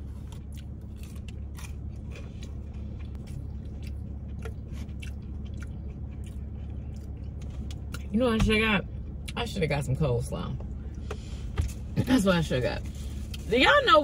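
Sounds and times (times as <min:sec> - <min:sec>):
person chewing crunchy food: 0:00.0 - 0:08.1.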